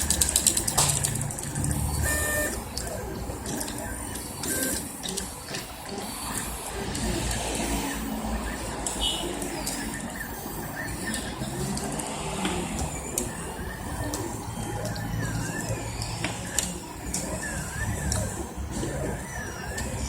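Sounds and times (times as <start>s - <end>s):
sharp clicks: 0.0s - 7.1s
stepper motors whining: 0.0s - 20.0s.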